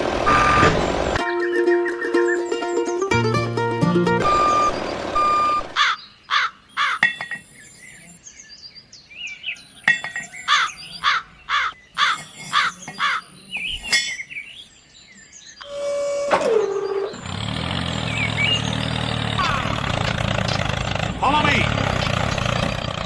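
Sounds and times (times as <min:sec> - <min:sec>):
small birds chirping: 0:00.9 - 0:03.4, 0:04.3 - 0:15.7, 0:16.6 - 0:23.0
crows cawing: 0:05.8 - 0:07.1, 0:10.5 - 0:13.2.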